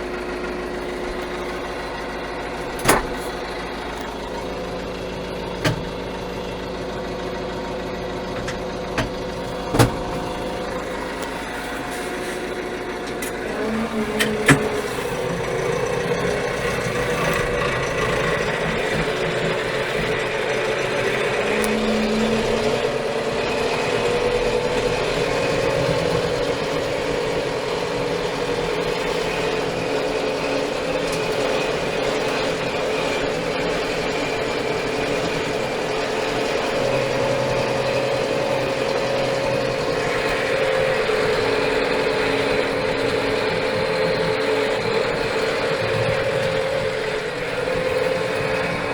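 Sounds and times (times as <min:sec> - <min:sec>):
tractor diesel engine running: 0:00.0 - 0:48.9
sharp engine knocks: 0:00.2 - 0:28.2.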